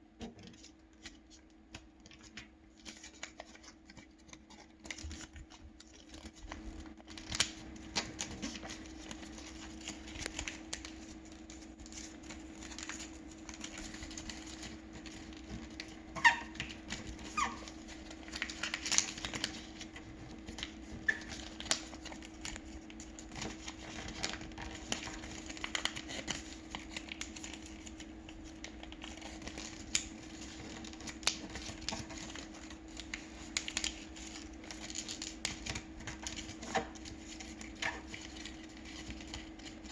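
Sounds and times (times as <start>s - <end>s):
paper rustling and crackling: 0.3s - 39.9s
short paper squeaks: 16.2s - 16.6s, 17.2s - 17.8s.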